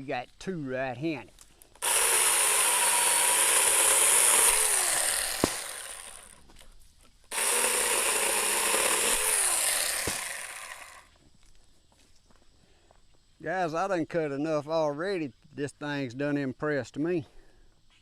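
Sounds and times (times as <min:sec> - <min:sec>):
mini chainsaw running: 0:01.8 - 0:06.4, 0:07.3 - 0:11.1
sharp snap: 0:05.4 - 0:05.7.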